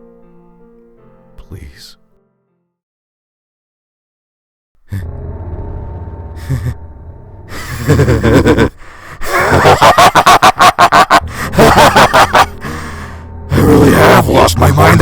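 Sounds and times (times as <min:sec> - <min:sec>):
low steady hum: 0:04.9 - 0:09.7
ragged gasping breaths: 0:08.7 - 0:09.4, 0:12.5 - 0:13.3.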